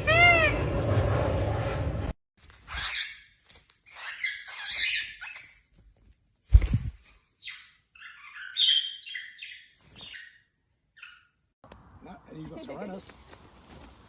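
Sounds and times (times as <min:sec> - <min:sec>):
bird chirping: 0:07.4 - 0:11.5.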